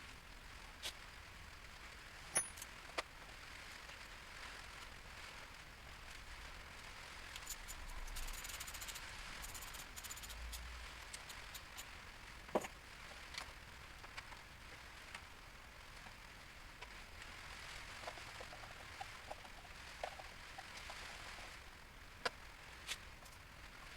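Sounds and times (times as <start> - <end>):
metallic clicks of tools: 2.3 - 2.7.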